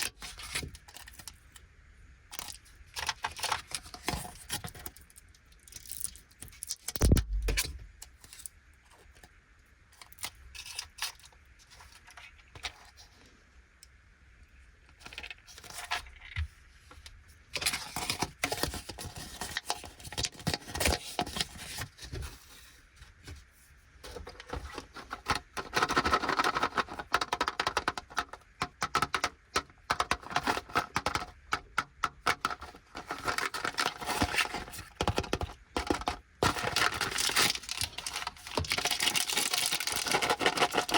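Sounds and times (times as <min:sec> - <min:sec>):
plastic packaging crinkling: 0:24.0 - 0:40.9.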